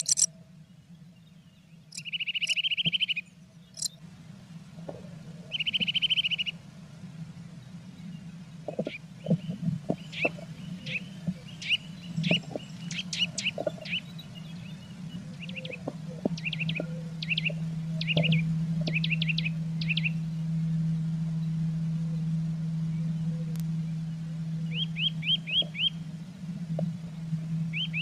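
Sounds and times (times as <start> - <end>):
bird chirps: 0.0 - 0.3, 1.2 - 4.0, 5.5 - 6.5, 8.7 - 20.2, 24.6 - 26.0, 27.7 - 28.0
steady low hum: 0.0 - 28.0
soft low knocks and scratches: 12.2 - 14.0.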